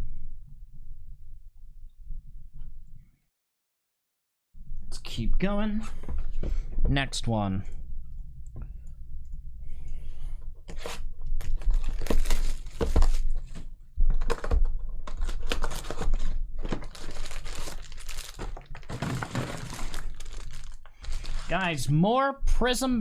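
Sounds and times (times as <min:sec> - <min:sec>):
foil wrapper ripping and crinkling: 0:11.4 - 0:13.6, 0:15.1 - 0:21.7.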